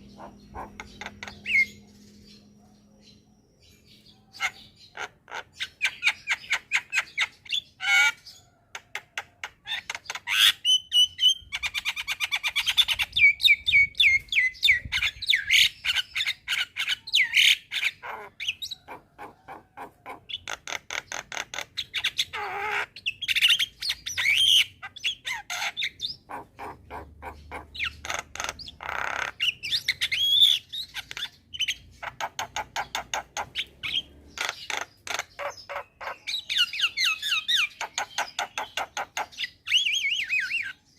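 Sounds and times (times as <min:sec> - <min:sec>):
bird harsh squawks: 0:00.0 - 0:01.8, 0:14.9 - 0:40.8.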